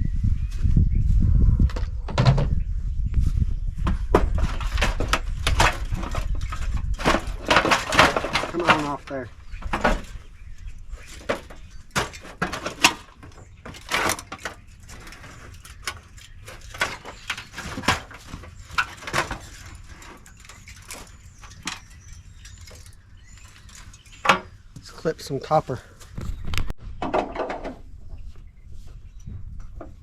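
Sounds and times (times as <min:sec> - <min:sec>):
metal knocks and clanks: 0:03.8 - 0:10.3, 0:11.0 - 0:24.6, 0:27.0 - 0:27.9.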